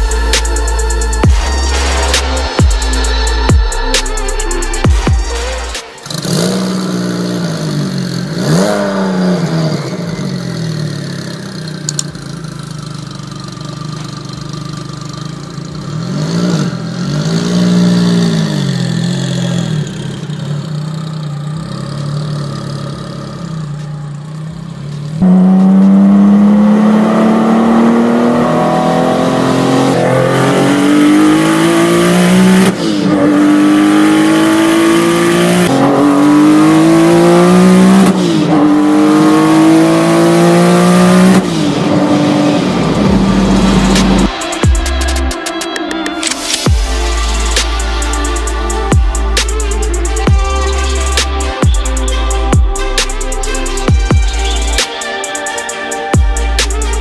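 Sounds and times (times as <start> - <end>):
car accelerating hard: 0.0 - 45.4
car engine revving: 0.0 - 57.0.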